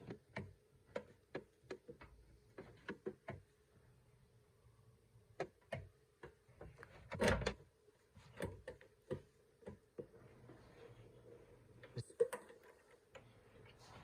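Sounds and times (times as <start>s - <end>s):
heater casing clicking and knocking: 0.0s - 3.6s, 8.3s - 10.2s.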